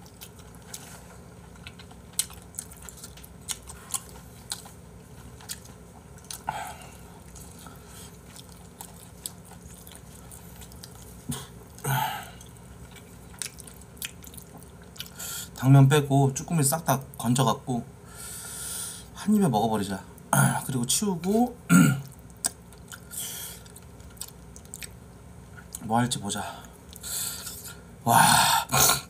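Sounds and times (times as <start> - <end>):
person chewing: 0.0 - 15.2, 22.0 - 25.8, 26.6 - 27.8.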